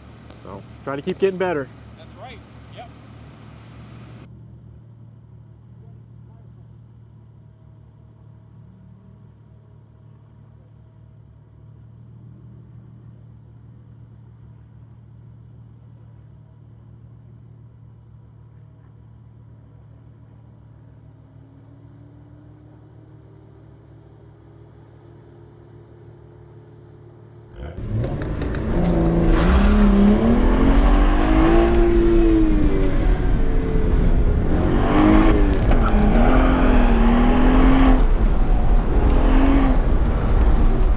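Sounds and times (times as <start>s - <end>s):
car engine idling: 22.4s - 40.9s
car engine revving hard: 27.6s - 40.9s.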